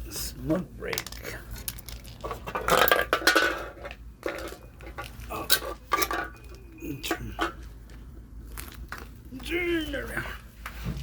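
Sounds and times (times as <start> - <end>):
hard objects clicking and knocking: 0.9 - 8.0.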